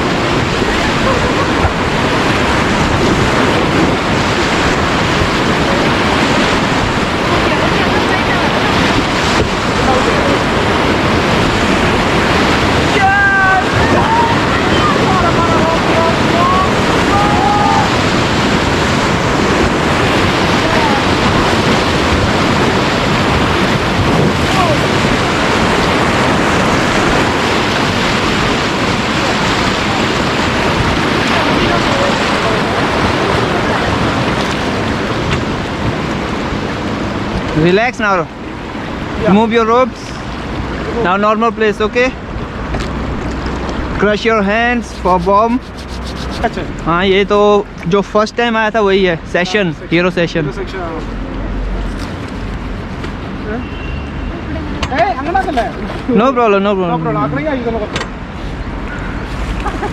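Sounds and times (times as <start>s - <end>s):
river water rushing: 0.0s - 47.8s
wind buffeting microphone: 0.0s - 47.8s, 51.0s - 53.5s.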